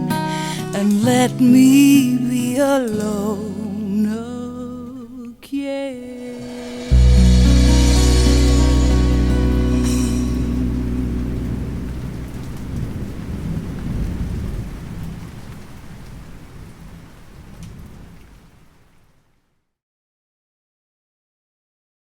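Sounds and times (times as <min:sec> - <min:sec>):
rain: 0:00.1 - 0:03.3, 0:06.5 - 0:19.6
rolling thunder: 0:06.8 - 0:18.6.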